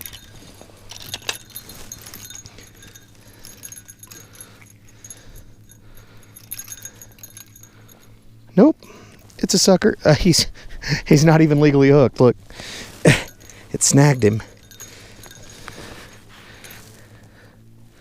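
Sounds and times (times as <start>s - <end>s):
fishing tackle clicks and clinks: 0.0s - 8.2s, 12.9s - 17.2s
faint low hum: 0.0s - 18.0s.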